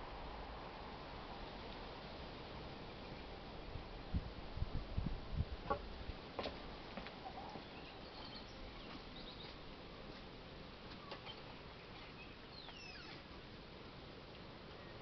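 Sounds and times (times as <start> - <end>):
low steady hiss: 0.0 - 15.0
small bird chirps: 7.4 - 9.6, 11.0 - 13.3.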